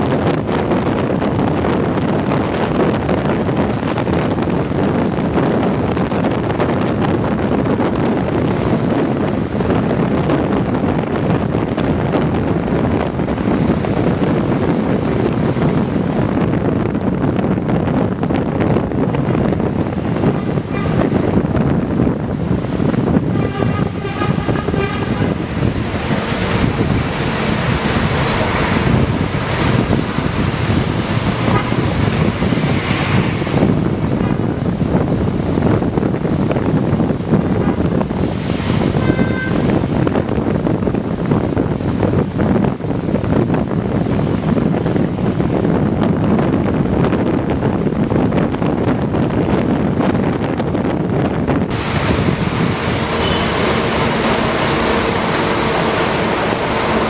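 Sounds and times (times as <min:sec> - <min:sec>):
tyre and wind noise: 0:00.0 - 0:57.0
coach engine drone: 0:19.1 - 0:35.5, 0:51.7 - 0:57.0.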